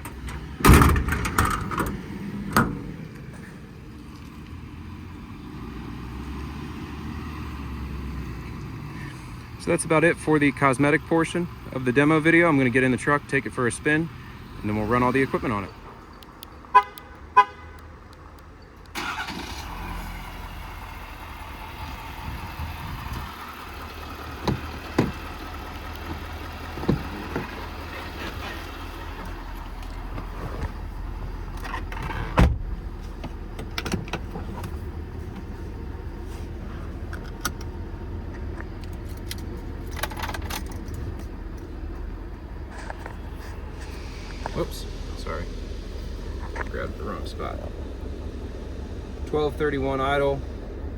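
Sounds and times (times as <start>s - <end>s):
diesel engine starting and idling: 0.0s - 16.8s, 18.0s - 50.9s.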